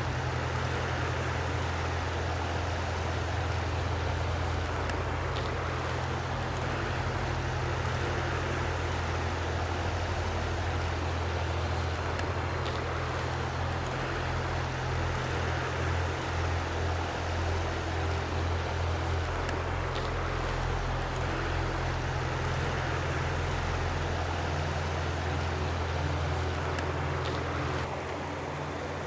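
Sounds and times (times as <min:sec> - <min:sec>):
stream water rushing: 0:00.0 - 0:29.0.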